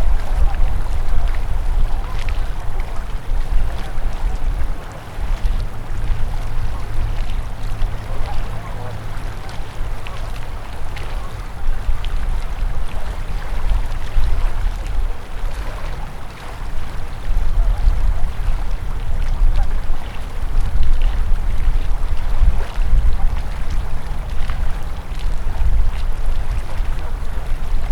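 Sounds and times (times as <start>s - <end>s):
low rumble: 0.0s - 27.9s
river water rushing: 0.0s - 27.9s
small water splashes: 0.0s - 27.9s.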